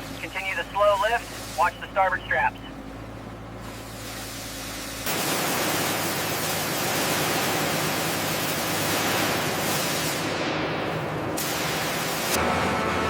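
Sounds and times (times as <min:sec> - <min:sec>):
low machine hum: 0:00.0 - 0:11.4
loud even hiss: 0:03.6 - 0:10.6.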